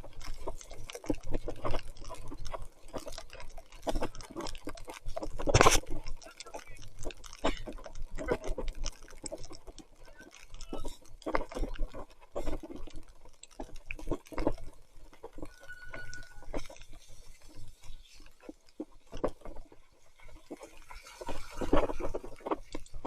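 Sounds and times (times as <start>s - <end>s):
short steady squeak: 15.5s - 16.5s.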